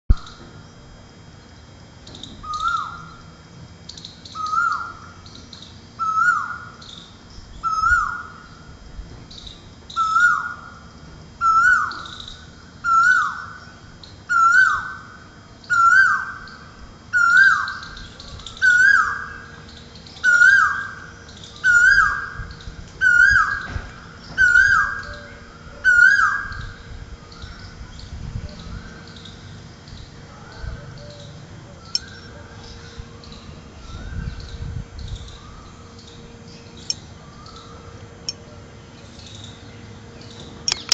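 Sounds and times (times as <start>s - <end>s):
cuckoo calling: 4.3s - 5.4s, 30.3s - 34.6s, 40.7s - 40.9s
high bird chirps: 31.9s - 32.4s.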